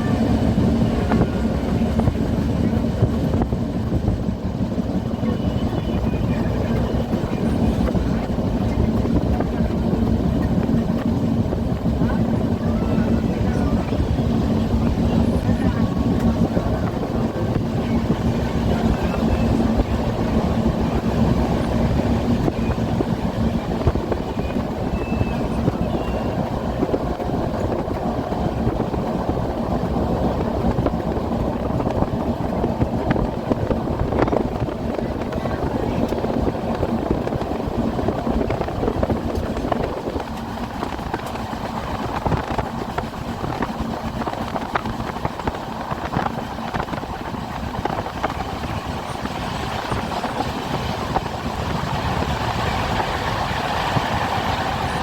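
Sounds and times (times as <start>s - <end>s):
train carriage rumble and rattle: 0.0s - 55.0s.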